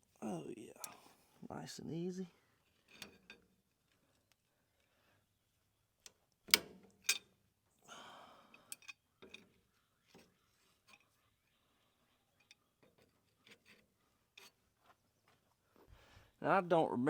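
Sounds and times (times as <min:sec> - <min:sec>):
metal tools clicking and clanking: 0:02.8 - 0:03.5, 0:06.5 - 0:07.4, 0:08.5 - 0:11.2, 0:12.3 - 0:14.6.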